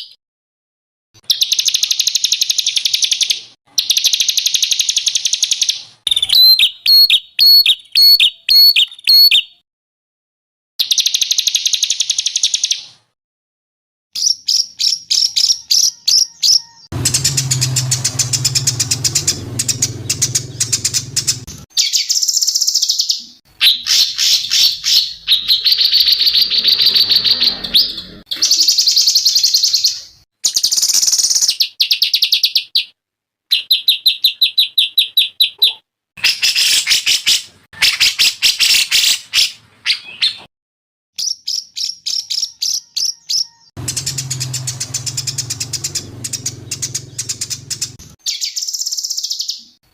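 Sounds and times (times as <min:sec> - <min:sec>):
songbird chattering and trilling: 0:01.3 - 0:09.6, 0:14.2 - 0:32.9, 0:41.2 - 0:49.8
low hum: 0:17.0 - 0:21.6.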